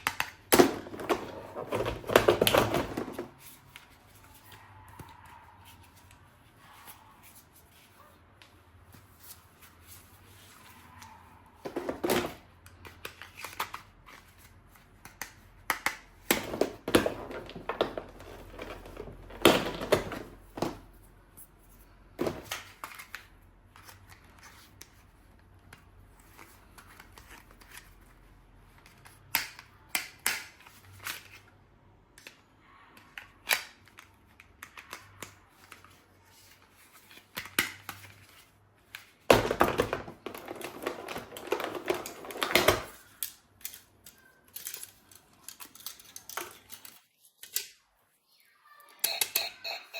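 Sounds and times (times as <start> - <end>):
toy gun clicks and knocks: 49.0 - 49.8.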